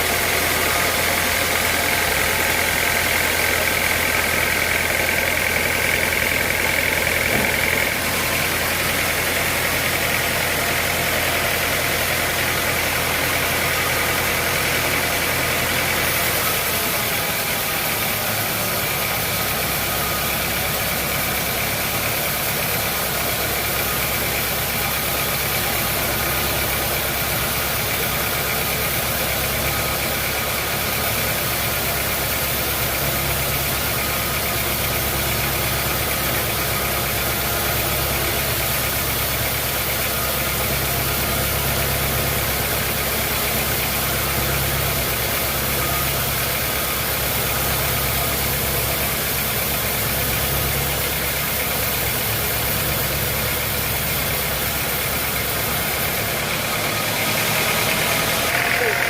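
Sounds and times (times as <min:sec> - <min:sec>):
sawmill machinery humming: 0:00.0 - 0:59.0.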